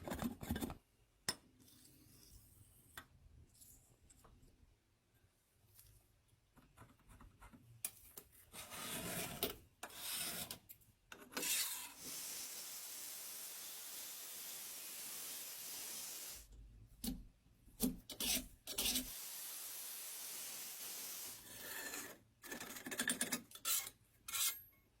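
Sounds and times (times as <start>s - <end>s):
steady hiss: 12.0s - 16.5s, 18.8s - 21.5s.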